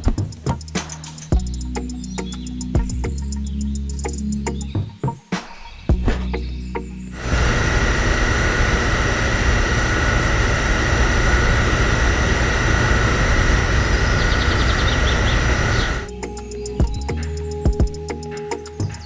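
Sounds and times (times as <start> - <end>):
machine noise with high whine: 5.9 - 19.0.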